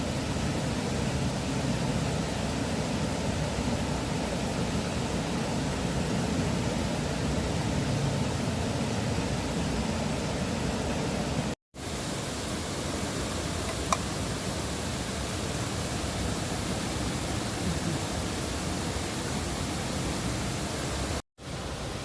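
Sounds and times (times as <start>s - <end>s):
river water rushing: 11.8s - 22.0s.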